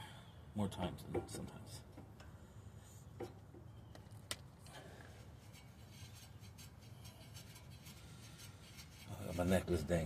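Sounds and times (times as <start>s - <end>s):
light ticks and rubs: 5.4s - 9.9s.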